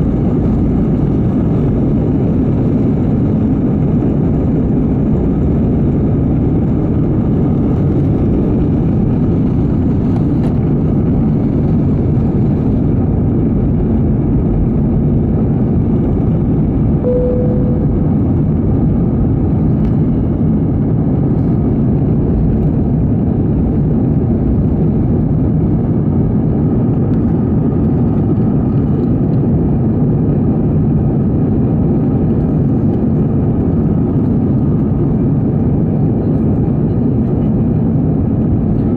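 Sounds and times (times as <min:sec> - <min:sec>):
jet engine and airflow rush: 0:00.0 - 0:38.9
single cabin tone: 0:17.0 - 0:18.6.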